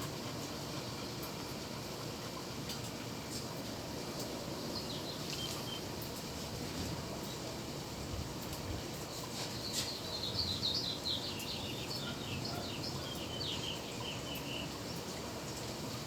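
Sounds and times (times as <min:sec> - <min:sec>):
small bird chirping: 0:09.6 - 0:14.8.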